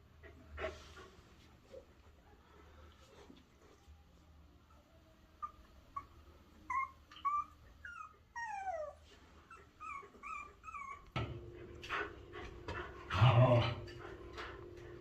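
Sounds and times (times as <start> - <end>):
puppies whimpering: 5.4 - 11.1.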